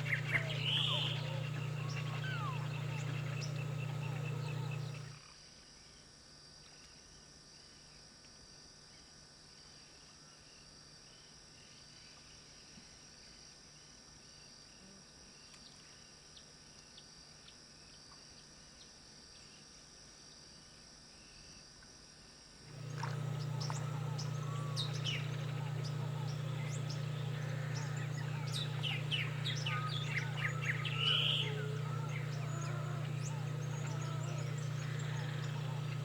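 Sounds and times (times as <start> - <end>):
chirping bird calls: 0.0 - 5.1, 22.7 - 36.0.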